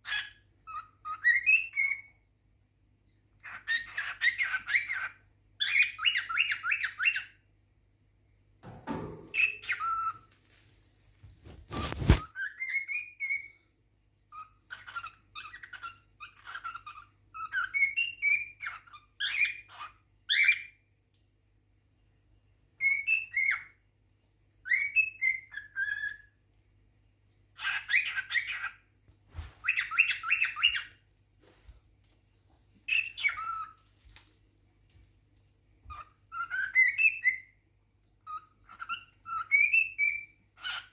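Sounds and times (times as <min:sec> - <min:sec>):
cockatiel whistling: 0:00.1 - 0:02.1, 0:03.4 - 0:07.3, 0:09.4 - 0:10.2, 0:11.7 - 0:13.6, 0:14.3 - 0:20.7, 0:22.8 - 0:23.8, 0:24.6 - 0:26.3, 0:29.6 - 0:30.9, 0:32.9 - 0:33.8, 0:35.9 - 0:37.6, 0:38.2 - 0:40.9.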